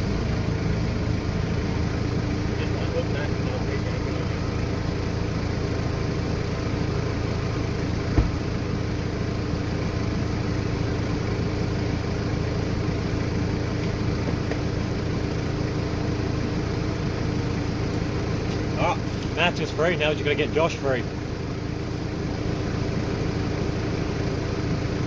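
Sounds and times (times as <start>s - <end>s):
vehicle engine running: 0.0s - 25.0s
sharp knock: 8.1s - 8.4s.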